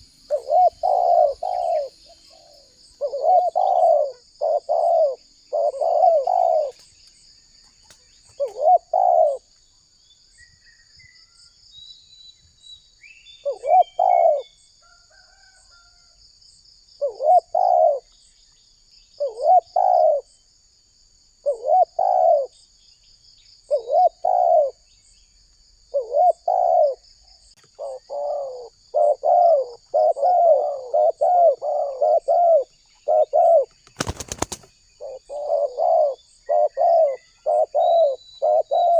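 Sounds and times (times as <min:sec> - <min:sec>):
dove cooing: 0:00.0 - 0:06.9, 0:08.3 - 0:09.5, 0:13.4 - 0:14.5, 0:17.0 - 0:18.1, 0:19.2 - 0:20.3, 0:21.4 - 0:22.6, 0:23.7 - 0:24.8, 0:25.9 - 0:27.0, 0:27.7 - 0:38.9.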